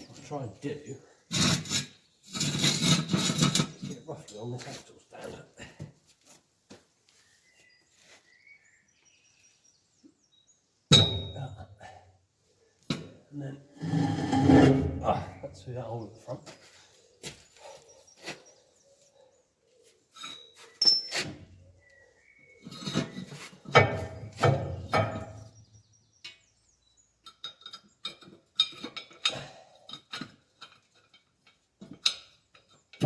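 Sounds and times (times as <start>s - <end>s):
metal knocks and clunks: 23.7s - 25.5s.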